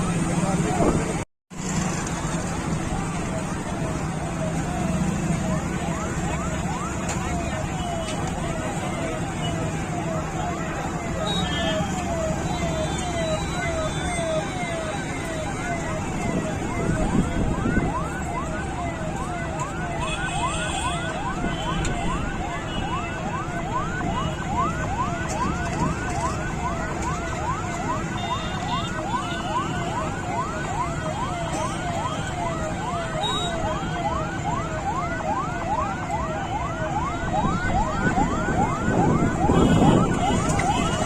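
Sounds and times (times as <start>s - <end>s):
rumble of engines and traffic: 0.0s - 41.0s
electronic siren yelping: 2.9s - 41.0s.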